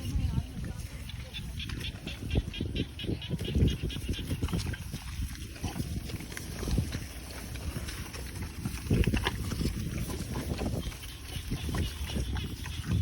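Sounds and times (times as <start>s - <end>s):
cows tearing and chewing grass: 0.0s - 13.0s.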